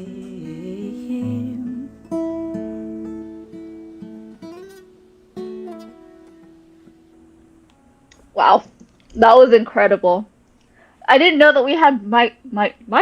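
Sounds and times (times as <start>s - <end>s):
acoustic guitar chords ringing: 0.0s - 8.6s.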